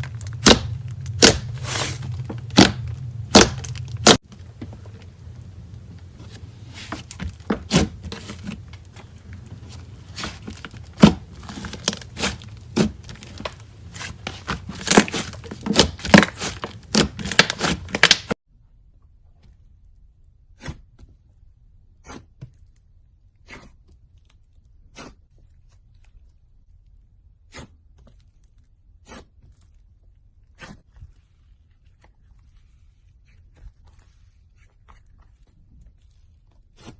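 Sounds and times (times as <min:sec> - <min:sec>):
slime crackling and popping: 0:00.0 - 0:04.2, 0:09.9 - 0:18.4.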